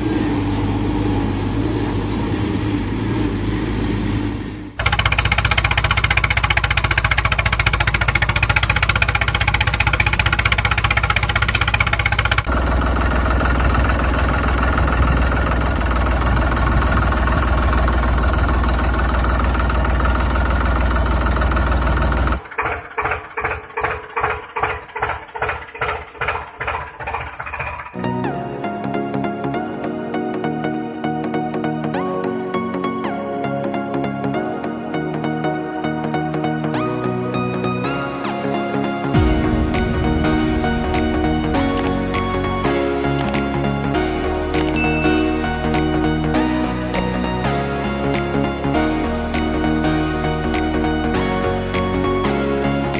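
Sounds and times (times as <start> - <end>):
vehicle engine chugging: 0.0 - 28.0
music: 28.0 - 52.9.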